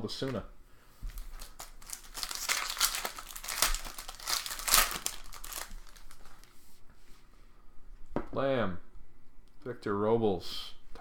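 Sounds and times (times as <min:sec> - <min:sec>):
wrapper crinkling: 0:01.1 - 0:06.6.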